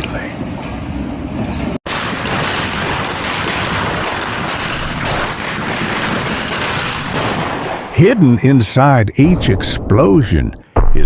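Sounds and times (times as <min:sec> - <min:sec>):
building demolition crackle and collapse: 0:01.9 - 0:06.8.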